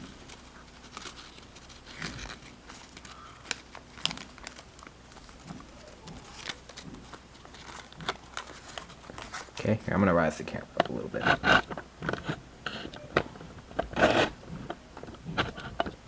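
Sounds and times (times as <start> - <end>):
paper crinkling and rustling: 0.0 - 9.9.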